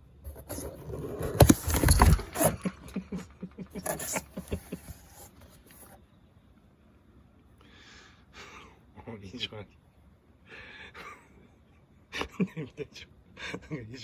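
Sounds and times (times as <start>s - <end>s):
rustling: 0.2s - 6.0s.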